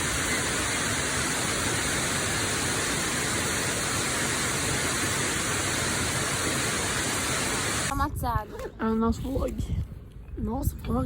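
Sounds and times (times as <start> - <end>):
waterfall rushing: 0.0 - 7.9.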